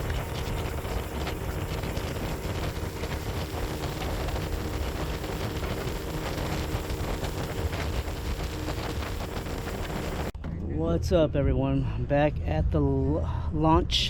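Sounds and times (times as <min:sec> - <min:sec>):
wind rushing over microphone: 0:00.0 - 0:10.8
boat engine running: 0:00.0 - 0:11.2.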